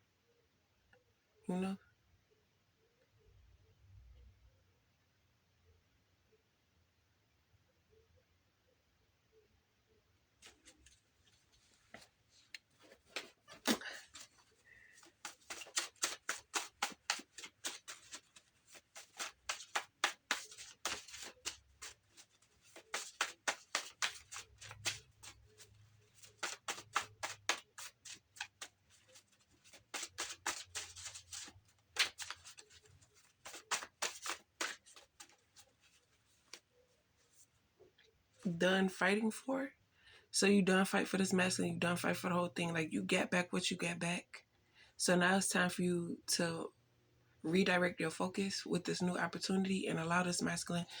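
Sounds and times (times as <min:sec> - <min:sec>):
cards being shuffled: 0:10.4 - 0:37.4.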